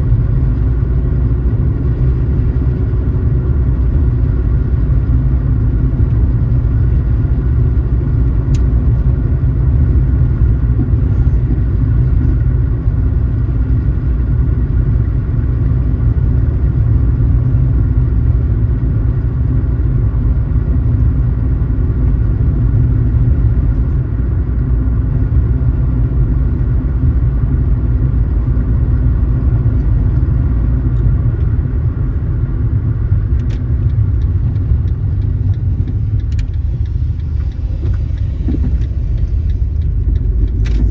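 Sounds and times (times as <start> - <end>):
car driving: 0.0 - 40.9.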